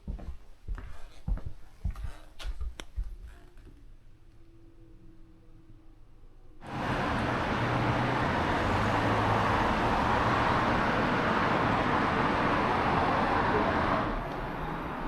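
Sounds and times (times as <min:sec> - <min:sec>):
car road and engine noise: 0:06.6 - 0:15.0.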